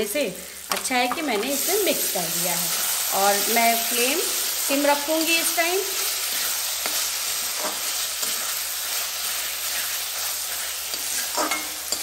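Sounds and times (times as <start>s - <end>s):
vegetables sizzling in oil: 0.0s - 12.0s
spatula scraping a pan: 6.0s - 12.0s.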